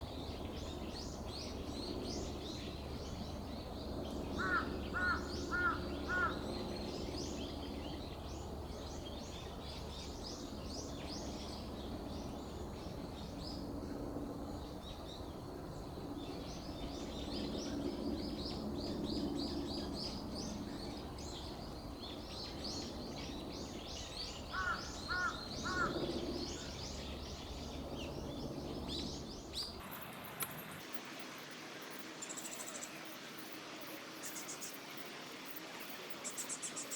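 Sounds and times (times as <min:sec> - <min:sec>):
birds chirping: 0:03.8 - 0:07.7, 0:17.2 - 0:31.0
loud bird calls: 0:04.4 - 0:06.6, 0:24.4 - 0:27.4.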